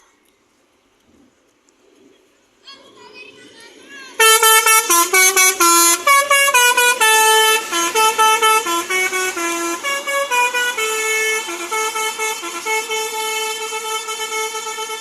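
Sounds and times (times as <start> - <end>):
musical bus horn playing a tune: 4.2 - 15.0.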